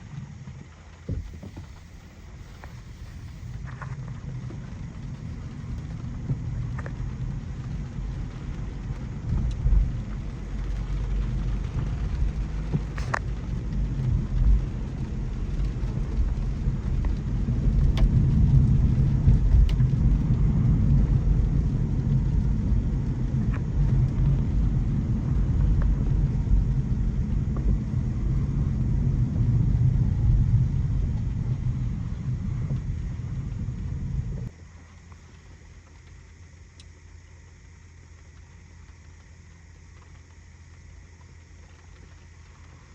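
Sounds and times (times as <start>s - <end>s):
car tyres rumbling on wet road: 0.0s - 42.9s
faint clicks: 34.4s - 42.9s.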